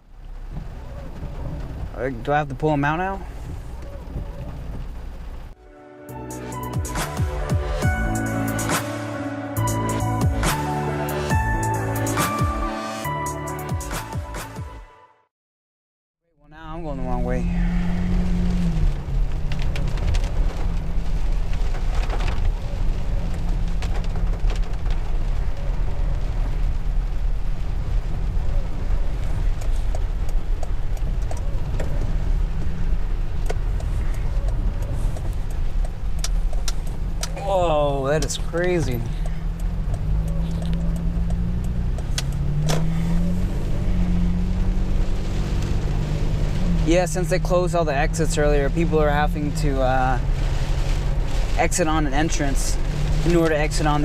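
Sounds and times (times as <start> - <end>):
heavy rain on a vehicle: 0.0 - 5.6, 16.6 - 54.0
vehicle engine and road rumble: 0.0 - 14.6, 16.3 - 54.0
sharp ticks: 33.4 - 37.4, 38.2 - 42.7.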